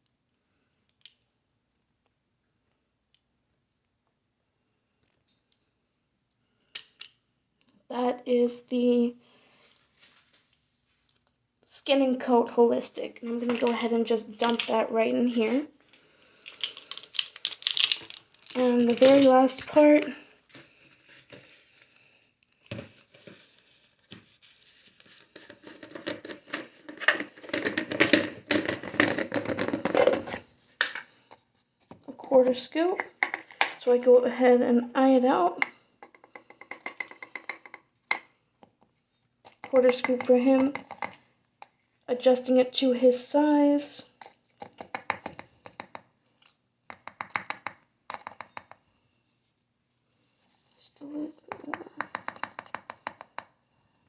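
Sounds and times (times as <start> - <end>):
scoop scratching and clicking: 16.5 - 20.2, 39.5 - 41.7, 44.2 - 48.8, 50.8 - 53.5.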